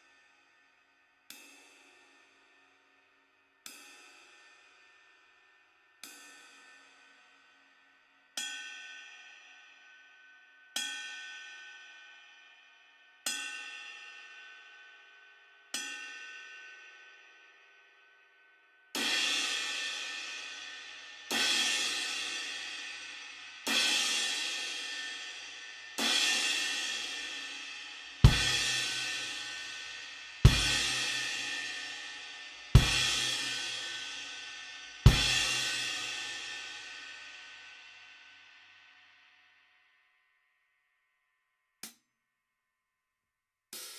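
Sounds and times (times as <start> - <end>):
cymbals struck and ringing: 28.3 - 34.3, 35.1 - 36.8
bass drum thump: 32.8 - 33.2.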